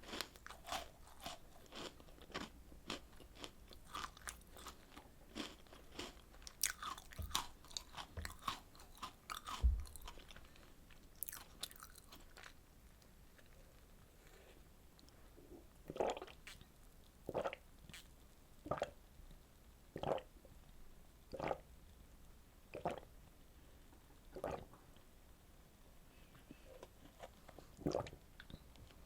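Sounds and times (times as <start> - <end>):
person biting and chewing: 0.0 - 10.3, 11.2 - 12.5.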